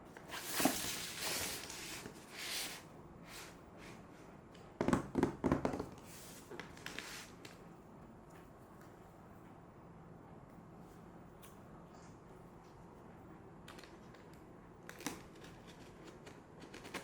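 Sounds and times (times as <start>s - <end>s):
packaging rustling and sliding: 0.2s - 4.0s
knocks and taps: 4.8s - 6.0s.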